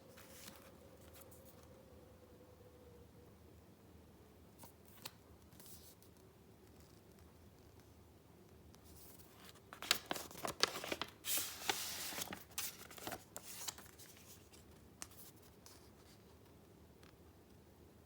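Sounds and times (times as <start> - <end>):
paper rustling and crackling: 0.1 - 1.6, 8.9 - 16.2
paper sliding or tearing: 10.7 - 14.0.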